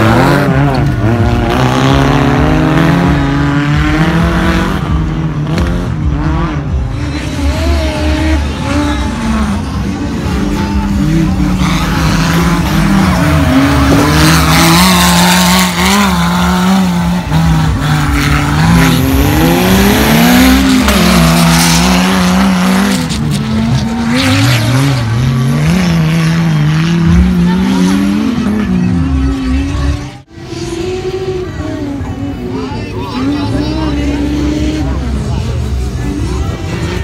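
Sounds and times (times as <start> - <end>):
race car engine revving: 0.0 - 37.0.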